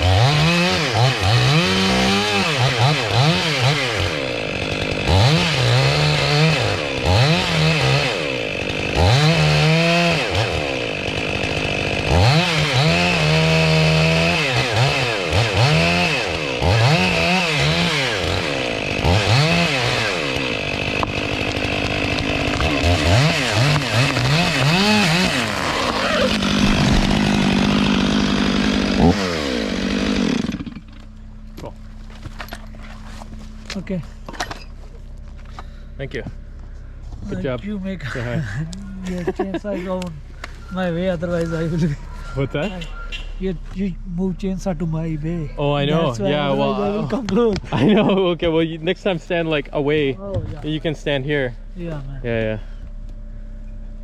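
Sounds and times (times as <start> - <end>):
chainsaw revving: 0.0 - 31.0, 45.6 - 51.1.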